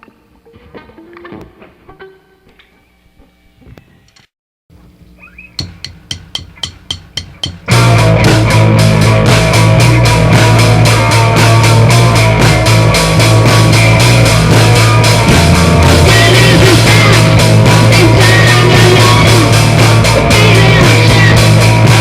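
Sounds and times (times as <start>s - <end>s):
instrumental rock band: 4.8s - 22.0s.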